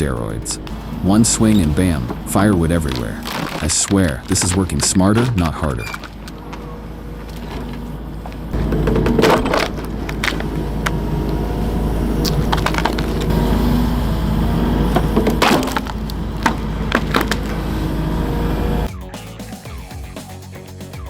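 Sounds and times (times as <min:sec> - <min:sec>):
wood cracking and splintering: 0:00.0 - 0:11.5, 0:12.1 - 0:13.3, 0:14.9 - 0:18.0
excavator engine hum: 0:00.0 - 0:20.8.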